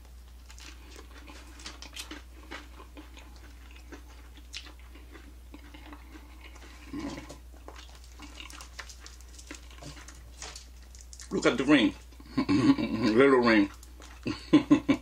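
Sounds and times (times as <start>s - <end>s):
chewing and wet mouth clicks: 0.6s - 11.4s.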